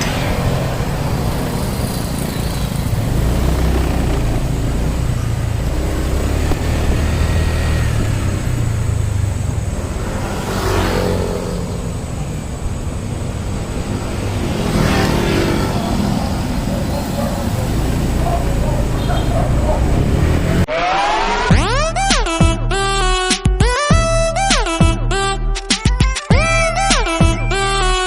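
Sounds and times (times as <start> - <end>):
scooter engine running: 0.0 - 20.7
road noise: 0.0 - 22.1.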